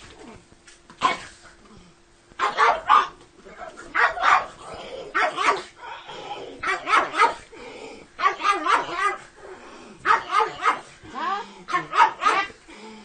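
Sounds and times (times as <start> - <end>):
dog barking: 2.4 - 5.7, 6.6 - 7.4, 8.2 - 9.2, 10.0 - 10.9, 11.7 - 12.6.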